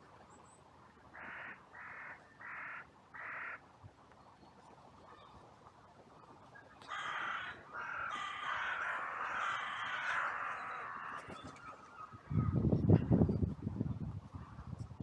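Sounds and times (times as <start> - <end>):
crows cawing: 1.2 - 3.6, 6.9 - 11.3.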